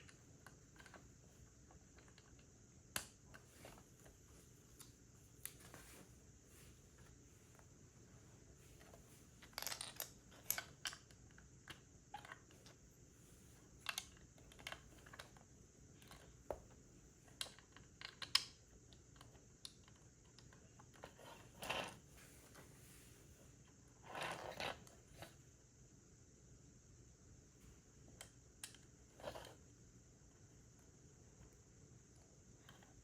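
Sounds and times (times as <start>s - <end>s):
plastic pieces clicking together: 17.4s - 21.8s.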